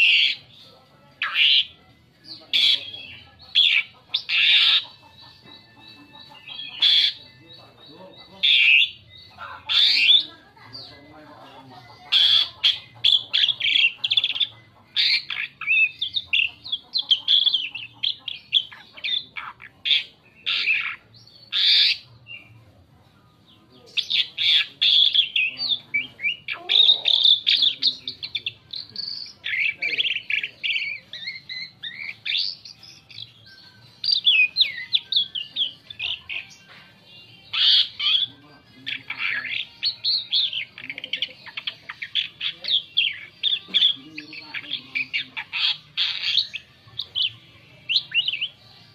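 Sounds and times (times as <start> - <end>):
starling singing: 0.0 - 48.9.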